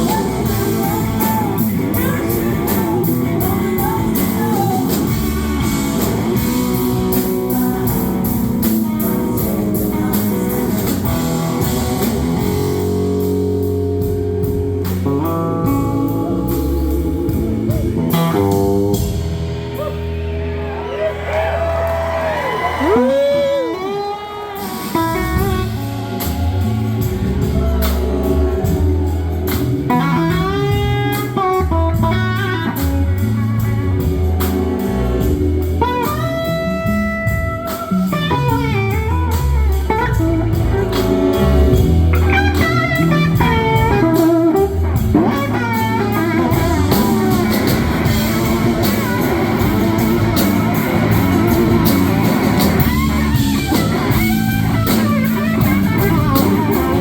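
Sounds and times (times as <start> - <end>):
bass and drums: 0.0 - 57.0
electric guitar lead: 0.0 - 57.0.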